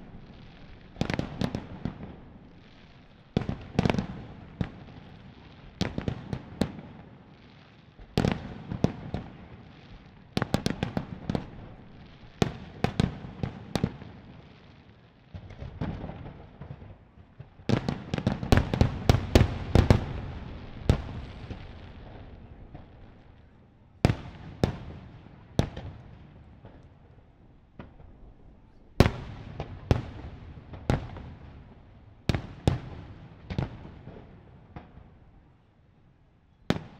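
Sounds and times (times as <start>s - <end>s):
fireworks bursting: 15.3s - 23.5s.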